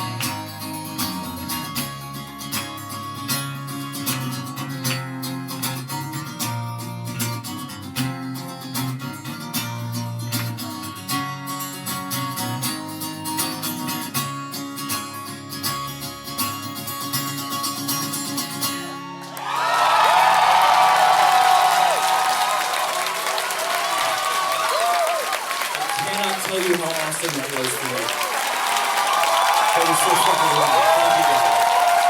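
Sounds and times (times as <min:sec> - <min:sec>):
acoustic guitar tune: 0:00.0 - 0:19.4
audience applause: 0:19.3 - 0:32.0.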